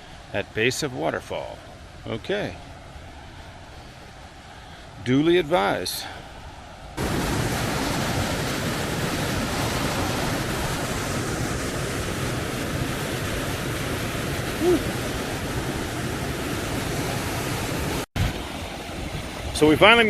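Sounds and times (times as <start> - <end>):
waterfall roaring: 7.0 - 20.0.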